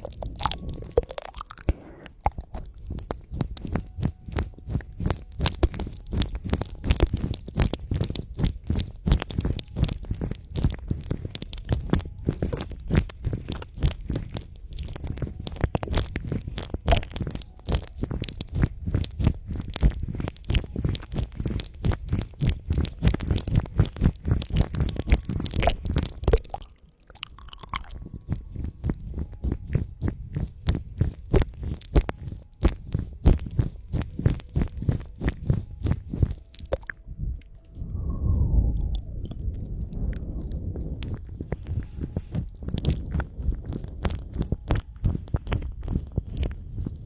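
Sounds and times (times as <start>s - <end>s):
crackly clicks: 0.0s - 29.6s.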